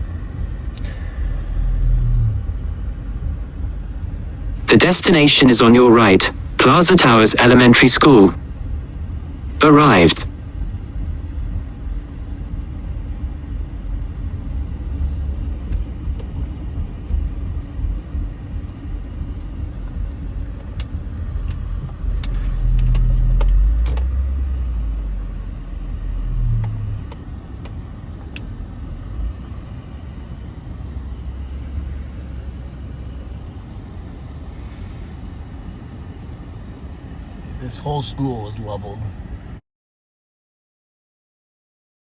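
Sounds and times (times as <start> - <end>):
car engine and road noise: 0.0 - 39.6.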